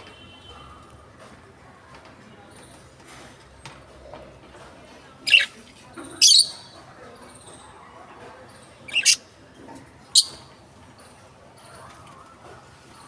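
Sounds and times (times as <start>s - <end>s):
lovebirds squawking: 5.3s - 5.5s, 6.2s - 6.7s, 8.9s - 9.2s, 10.2s - 10.4s
faint high chirping: 8.8s - 9.2s, 10.2s - 10.5s.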